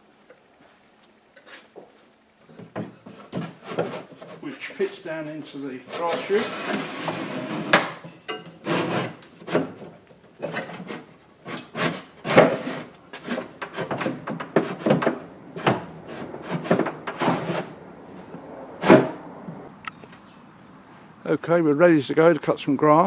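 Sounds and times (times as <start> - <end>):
plug knocking and scraping in chute: 5.9 - 17.8, 18.8 - 19.2.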